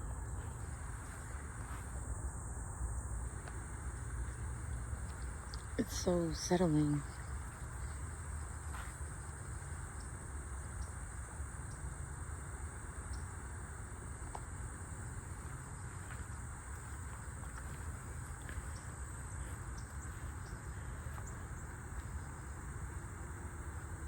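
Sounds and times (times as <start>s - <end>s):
crickets buzzing: 0.0s - 24.0s
faint ticks: 7.0s - 11.0s, 11.6s - 12.0s, 13.0s - 13.3s, 14.2s - 14.6s.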